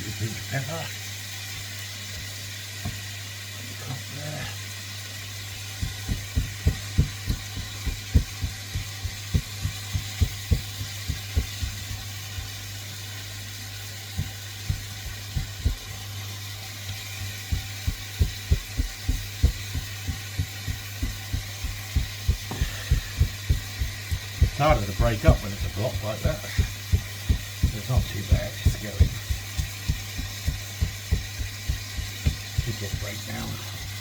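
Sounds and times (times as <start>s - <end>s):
steady low hum: 5.4s - 34.0s.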